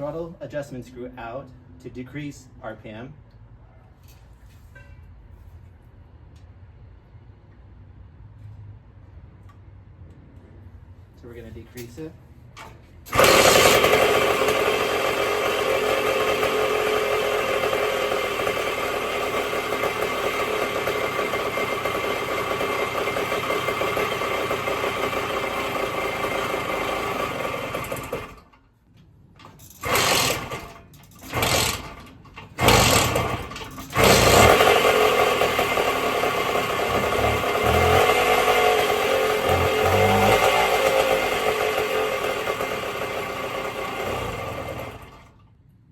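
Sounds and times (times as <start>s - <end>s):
two-stroke engine running: 13.1s - 28.5s, 29.4s - 45.4s.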